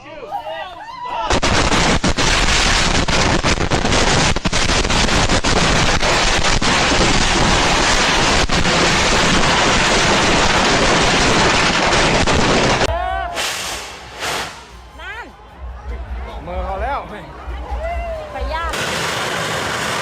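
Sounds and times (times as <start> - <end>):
fireworks crackling and banging: 1.3 - 15.0, 18.7 - 20.0.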